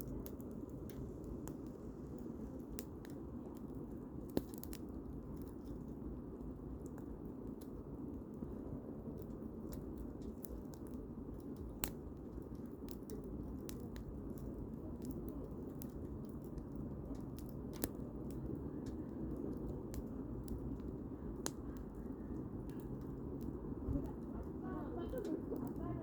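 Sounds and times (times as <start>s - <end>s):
campfire crackling and popping: 0.0s - 26.0s
low steady background noise: 0.0s - 26.0s.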